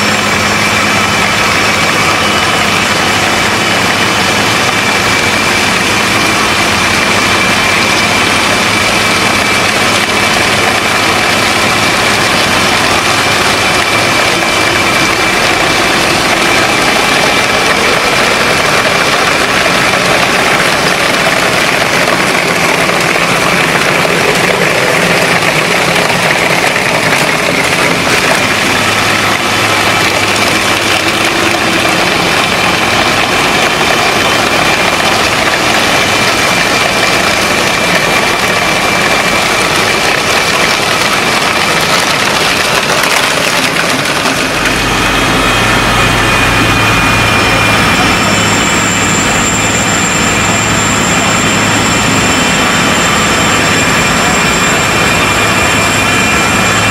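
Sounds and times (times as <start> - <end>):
large machine engine running: 0.0 - 56.9
thin high whine: 44.4 - 56.9.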